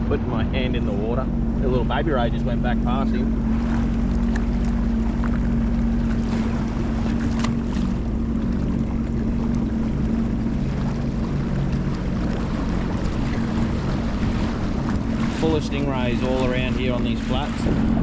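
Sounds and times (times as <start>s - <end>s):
jet ski engine idling: 0.0s - 18.0s
wind buffeting microphone: 0.0s - 18.0s.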